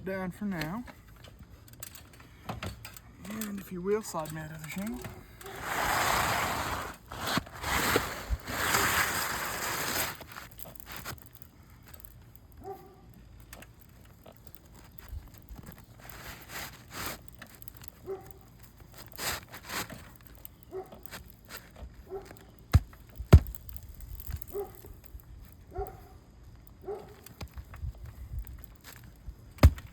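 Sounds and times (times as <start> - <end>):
roof shingle scraping: 3.3 - 11.5, 13.6 - 25.6, 26.8 - 29.9.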